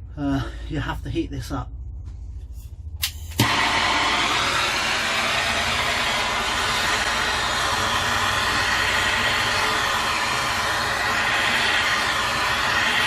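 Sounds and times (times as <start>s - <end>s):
heating tool hissing: 3.4s - 13.0s.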